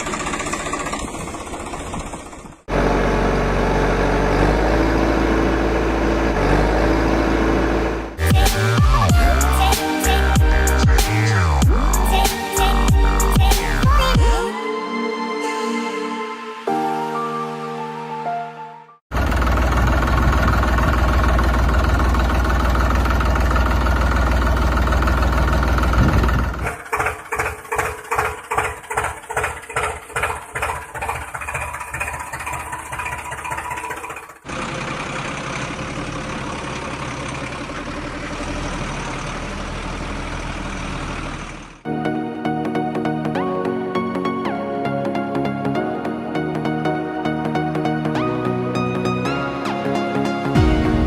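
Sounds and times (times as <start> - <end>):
vehicle engine running: 0.0 - 14.4, 19.1 - 41.9.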